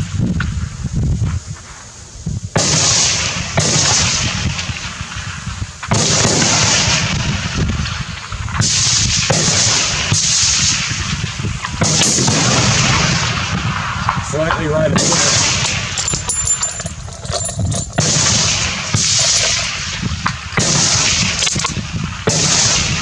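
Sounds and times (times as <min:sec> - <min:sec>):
rifle shots with echo: 0:11.8 - 0:16.8, 0:17.9 - 0:23.0.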